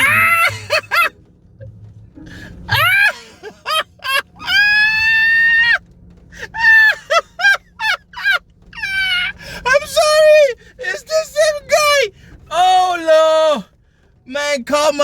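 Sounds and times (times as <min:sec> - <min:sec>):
person screaming high-pitched shrieks: 0:00.0 - 0:00.7, 0:02.7 - 0:03.2, 0:04.4 - 0:05.8.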